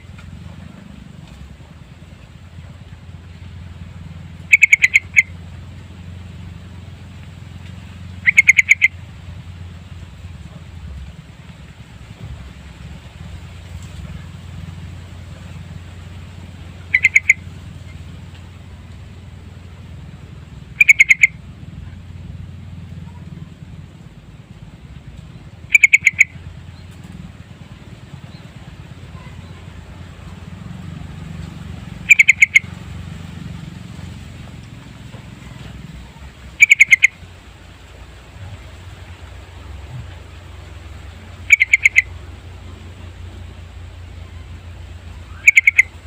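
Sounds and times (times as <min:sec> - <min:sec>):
bulbul singing bubbly phrases: 0:04.2 - 0:05.4, 0:08.0 - 0:09.2, 0:14.2 - 0:20.0, 0:20.6 - 0:21.8, 0:25.6 - 0:26.5, 0:28.2 - 0:33.4, 0:35.4 - 0:37.4, 0:38.4 - 0:46.0.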